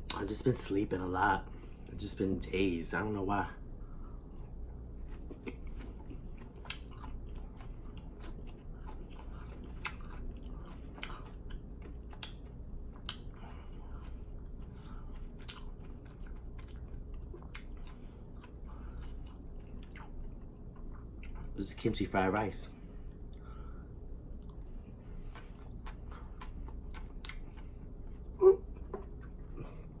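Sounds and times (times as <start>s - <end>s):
person chewing food: 3.9s - 21.6s, 23.0s - 30.0s
food crunching: 4.3s - 21.8s, 24.3s - 29.9s.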